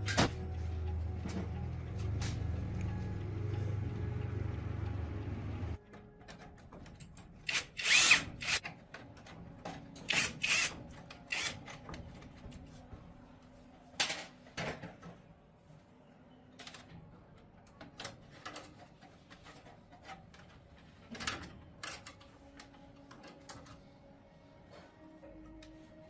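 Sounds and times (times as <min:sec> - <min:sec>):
tools and parts clicking: 0:17.6 - 0:23.9.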